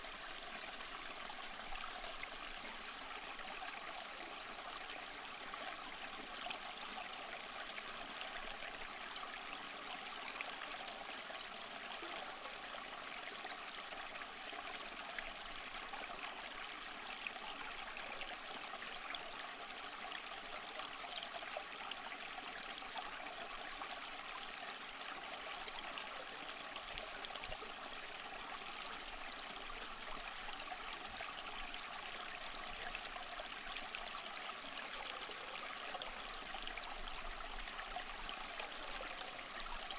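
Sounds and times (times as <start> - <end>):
stream trickling and splashing: 0.0 - 39.9.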